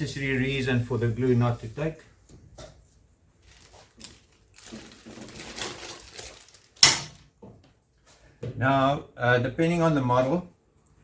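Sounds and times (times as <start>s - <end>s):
faint rubbing and handling: 0.3s - 6.8s.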